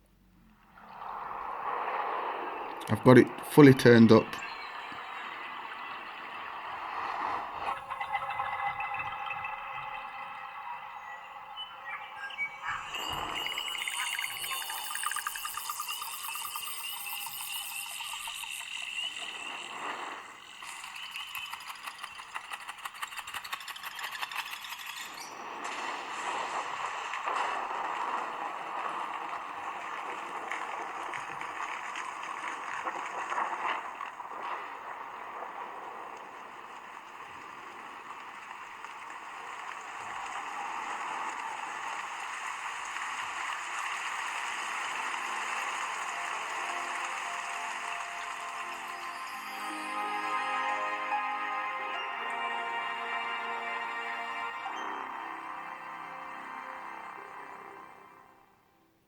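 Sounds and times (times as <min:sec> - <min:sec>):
tablet speaker audio: 0:02.7 - 0:30.7, 0:43.8 - 0:58.4
chirps trills and rattling clicks: 0:04.4 - 0:34.8.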